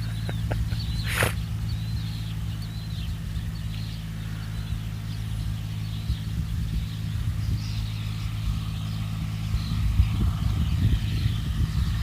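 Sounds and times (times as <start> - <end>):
engine humming: 0.0 - 12.0
small birds chirping: 0.0 - 12.0.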